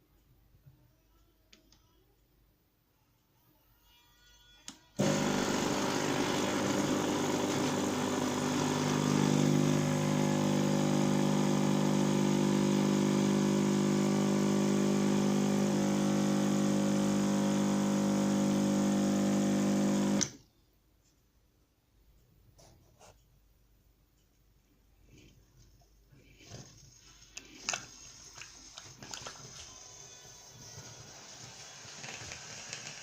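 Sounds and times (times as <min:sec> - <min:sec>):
coffee machine motor humming: 0:05.0 - 0:20.4.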